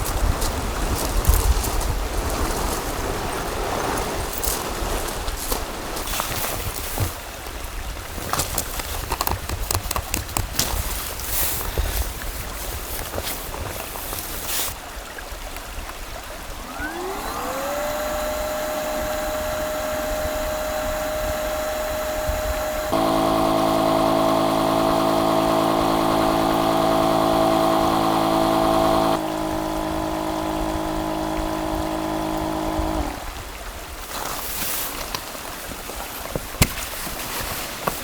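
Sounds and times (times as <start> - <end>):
electric air pump whining: 16.4 - 33.4.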